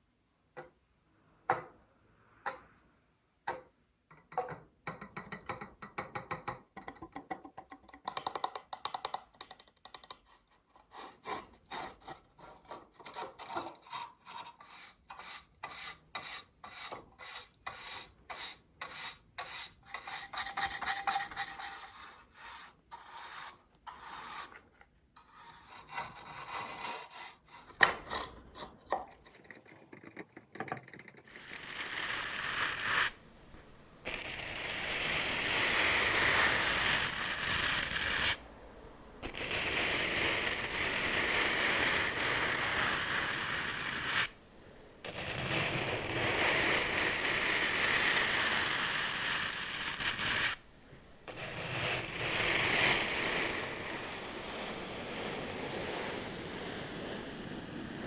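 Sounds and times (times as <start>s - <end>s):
scratching and rubbing: 10.2s - 38.5s, 39.2s - 44.4s, 45.0s - 55.4s.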